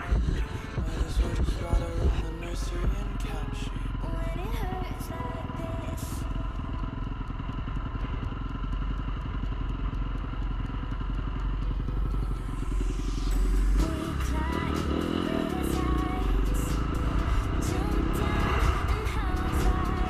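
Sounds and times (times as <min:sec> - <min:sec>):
music playing: 0:00.0 - 0:06.8, 0:11.7 - 0:20.0
dirt bike engine: 0:00.0 - 0:20.0.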